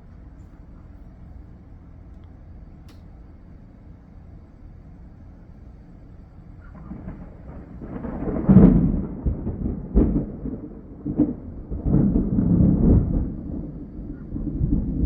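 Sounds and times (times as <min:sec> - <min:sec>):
thunder rumbling and cracking: 0:06.6 - 0:15.0.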